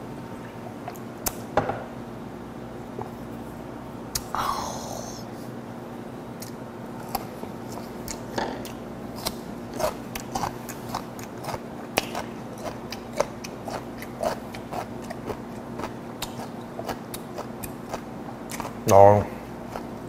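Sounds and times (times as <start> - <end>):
chewing: 6.4 - 18.9.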